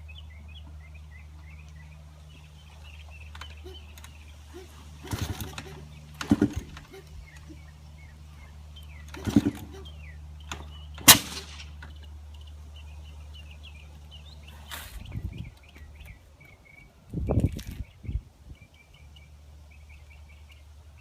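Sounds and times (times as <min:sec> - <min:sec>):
birds chirping: 0:00.0 - 0:21.0
dirt bike engine turning over: 0:03.0 - 0:07.7, 0:08.8 - 0:12.4
sharp loud crack: 0:11.0 - 0:11.8.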